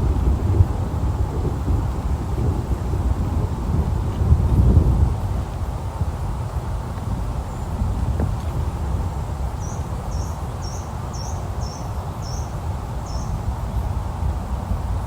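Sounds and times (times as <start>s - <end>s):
rain and wind: 0.0s - 15.0s.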